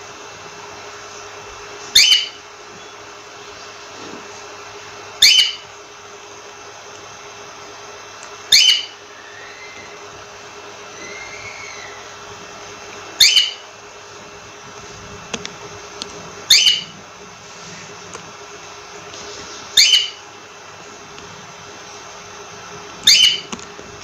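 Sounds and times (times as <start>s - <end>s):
steady background hum: 0.0s - 24.0s
cockatiel whistled calls: 1.9s - 2.9s, 5.2s - 5.7s, 8.5s - 10.0s, 10.9s - 12.0s, 13.2s - 13.6s, 16.5s - 16.9s, 19.8s - 20.2s, 23.0s - 23.5s
soft bird chirps: 1.9s - 3.1s, 5.2s - 5.7s, 8.5s - 10.0s, 13.2s - 13.7s, 16.5s - 16.9s, 19.8s - 20.2s, 23.0s - 23.5s.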